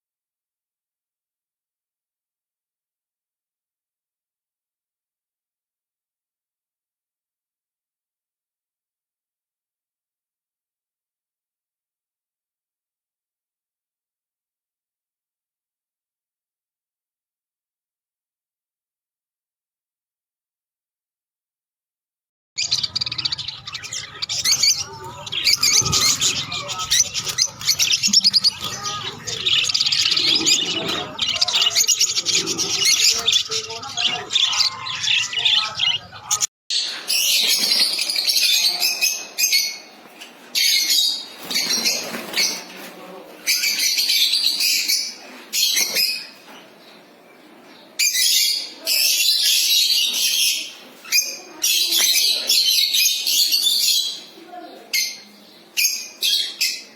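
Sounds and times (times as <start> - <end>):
lovebirds chirping and squawking: 22.6 - 56.9.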